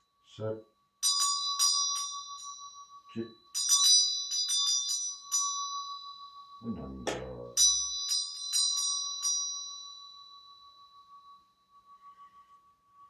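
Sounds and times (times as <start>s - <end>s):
small high-pitched bell ringing: 0.0s - 13.0s.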